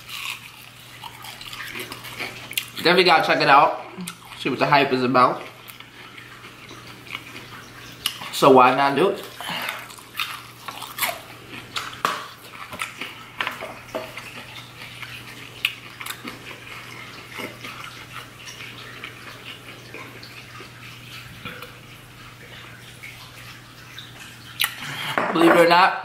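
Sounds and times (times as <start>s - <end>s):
wet chewing and lip-smacking: 0.0s - 2.8s, 3.9s - 4.5s, 5.4s - 8.4s, 9.2s - 25.1s.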